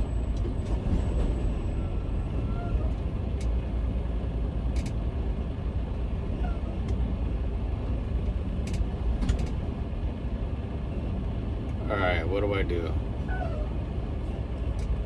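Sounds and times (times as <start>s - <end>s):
truck engine and road noise: 0.0s - 15.0s
sharp clicks and rattles: 8.6s - 9.7s.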